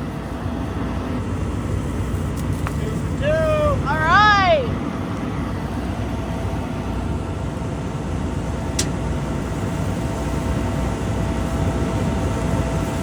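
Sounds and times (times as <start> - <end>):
faint steady hum: 0.0 - 13.0
vehicle engine running: 0.0 - 13.0.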